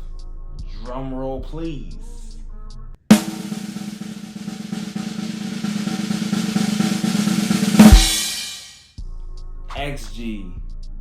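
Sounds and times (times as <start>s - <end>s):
loud drum hit ringing: 3.1s - 8.7s
snare drum roll: 3.1s - 8.8s.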